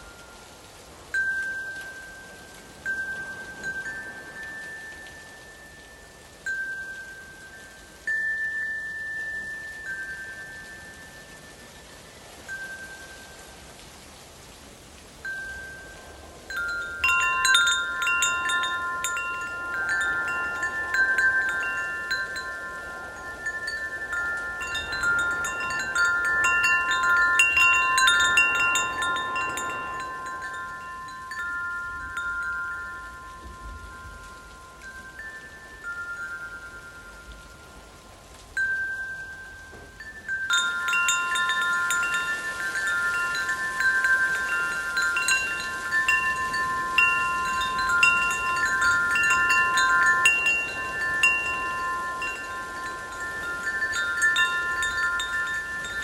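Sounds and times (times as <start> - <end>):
metal wind chimes ringing: 0.0 - 13.7, 15.2 - 56.0
gust of wind: 15.2 - 56.0.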